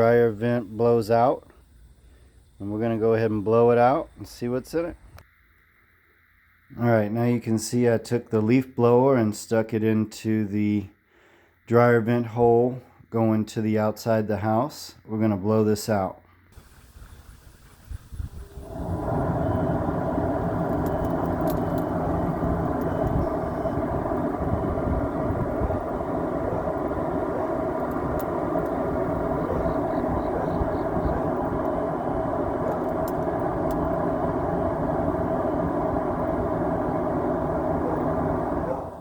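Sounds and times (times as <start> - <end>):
leaf blower running: 16.6 - 39.0.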